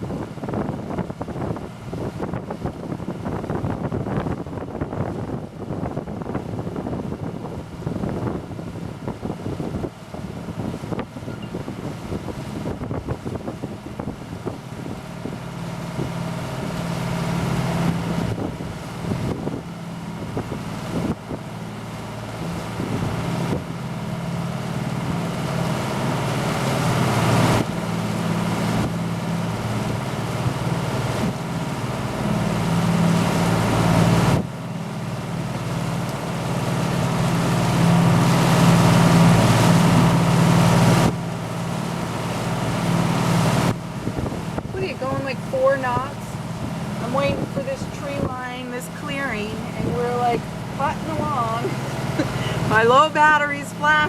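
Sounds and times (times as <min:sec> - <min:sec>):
boat engines humming: 0:00.0 - 0:54.0
wind rushing over microphone: 0:00.0 - 0:54.0.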